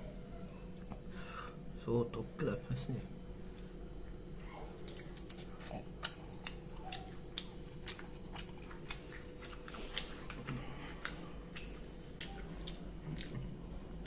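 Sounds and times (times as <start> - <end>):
faint steady hum: 0.0 - 14.0
person chewing: 3.5 - 14.0.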